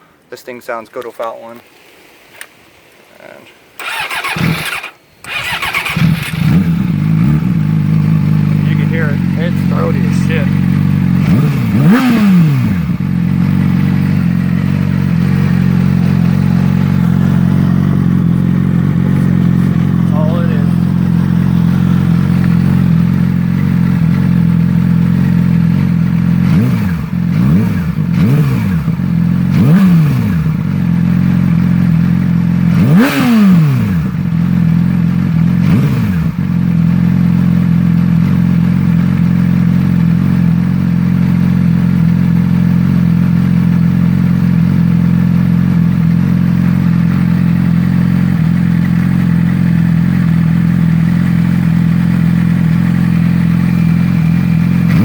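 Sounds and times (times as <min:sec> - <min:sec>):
motorcycle engine idling: 0:03.8 - 0:55.0
motorcycle throttle blips: 0:03.8 - 0:55.0.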